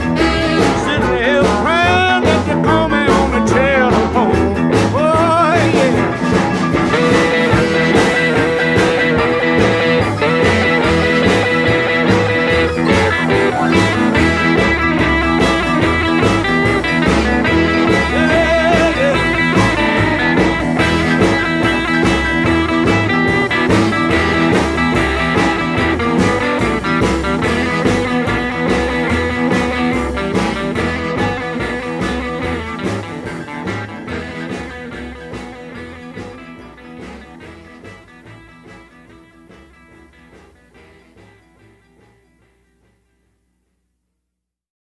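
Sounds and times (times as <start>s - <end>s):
blues-rock band playing: 0.0s - 43.1s.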